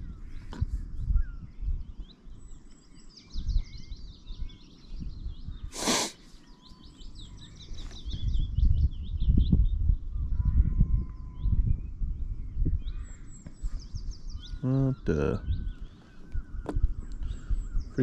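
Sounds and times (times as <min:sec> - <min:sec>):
small birds singing: 0:00.0 - 0:18.0
loud rushing hiss: 0:05.7 - 0:06.3.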